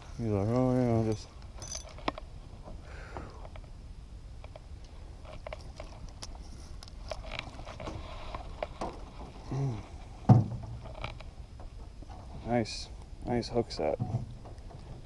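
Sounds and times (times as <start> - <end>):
fishing gear clicking: 1.5 - 2.2
person humming: 9.5 - 9.8.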